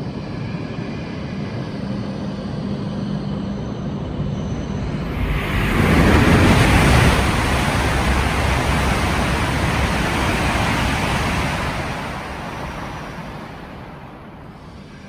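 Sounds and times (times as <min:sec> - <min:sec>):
high-speed train rushing past: 0:04.0 - 0:15.0.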